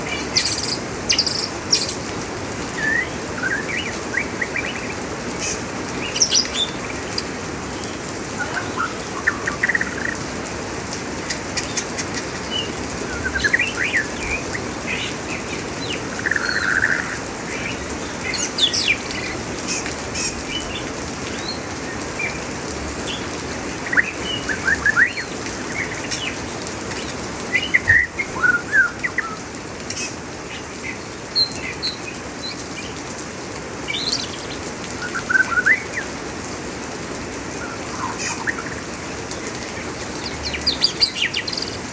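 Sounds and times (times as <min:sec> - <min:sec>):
rain hissing: 0:00.0 - 0:41.9
songbird chirping and singing: 0:11.6 - 0:21.6, 0:40.2 - 0:41.8.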